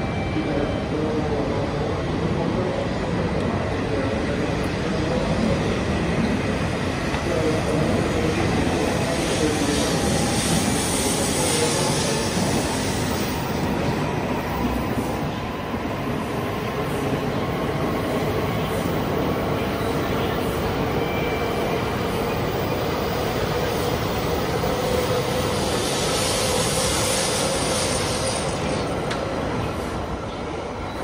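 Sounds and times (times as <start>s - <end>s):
train hiss: 7.3s - 15.3s, 23.7s - 30.1s.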